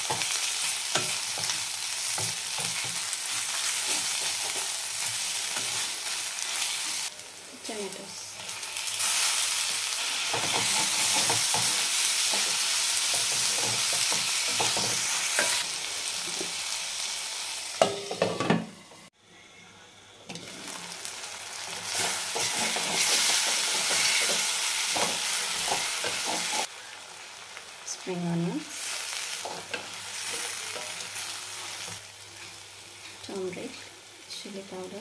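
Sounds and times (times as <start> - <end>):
vegetables sizzling in hot oil: 0.0 - 19.1, 20.3 - 35.0
spatula scraping and knocking pan: 10.3 - 15.6.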